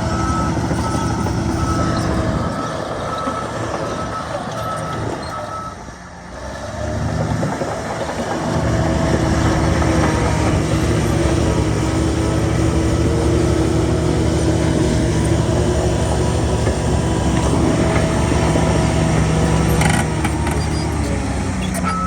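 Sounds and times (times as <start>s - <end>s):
reversing alarm beeping: 0.0s - 5.8s, 21.7s - 22.0s
diesel machinery engine running: 0.0s - 22.0s.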